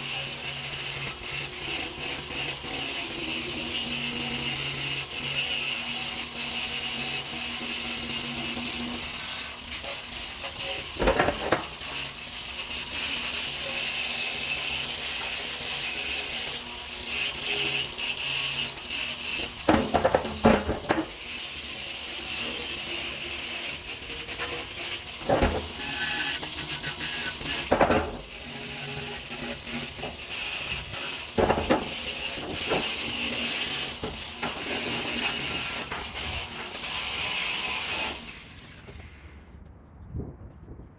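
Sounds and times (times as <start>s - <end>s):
sharp knocks and clatters: 10.6s - 12.2s, 18.8s - 21.4s, 23.6s - 39.0s.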